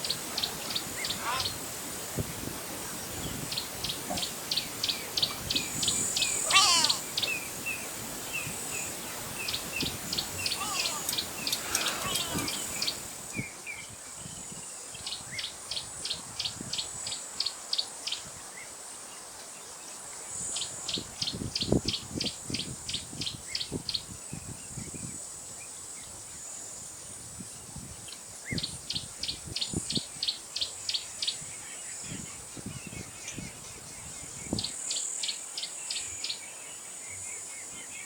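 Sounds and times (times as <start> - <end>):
swooping bird calls: 0.0 - 2.1, 3.0 - 13.4
birds calling with short high notes: 0.2 - 1.9, 3.1 - 13.5
high insect buzz: 3.0 - 13.4.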